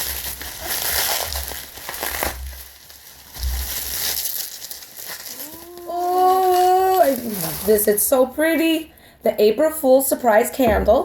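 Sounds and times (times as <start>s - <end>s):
bubble wrap crinkling: 0.0s - 8.4s.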